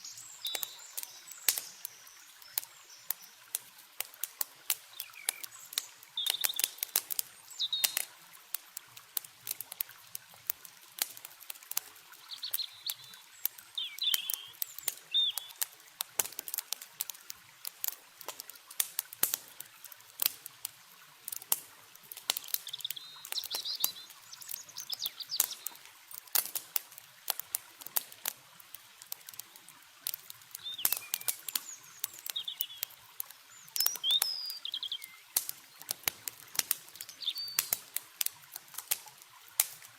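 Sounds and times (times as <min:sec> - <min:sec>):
songbirds chirping: 0:00.0 - 0:08.2, 0:12.0 - 0:15.8, 0:21.8 - 0:26.3, 0:29.2 - 0:37.9
campfire crackling: 0:00.0 - 0:39.9
flowing water hiss: 0:00.0 - 0:39.9.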